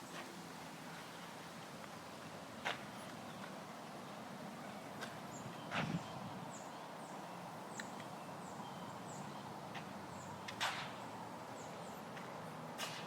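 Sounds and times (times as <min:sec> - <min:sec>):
bird chirping: 0:05.3 - 0:12.2.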